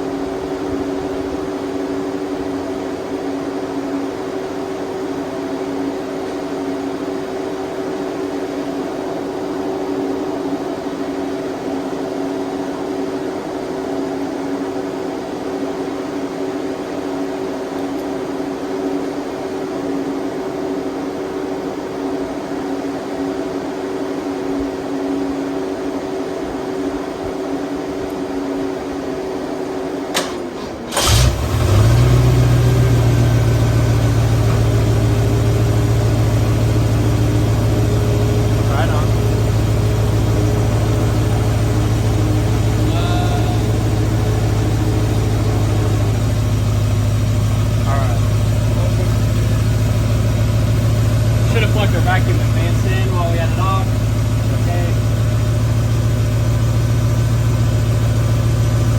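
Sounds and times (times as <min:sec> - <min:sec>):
car engine cranking and idling: 0:00.0 - 0:11.4, 0:27.4 - 0:58.9
electric cooling fans humming: 0:00.0 - 0:58.9.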